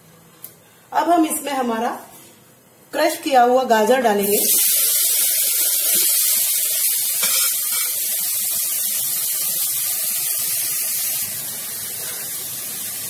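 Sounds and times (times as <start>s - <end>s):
carrot sizzling in ghee: 4.2s - 13.0s.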